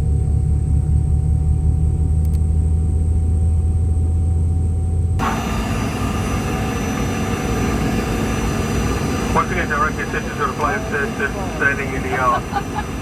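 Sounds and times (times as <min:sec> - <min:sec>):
airliner cabin low hum: 0:00.0 - 0:13.0
whining noise with high tones: 0:05.2 - 0:13.0.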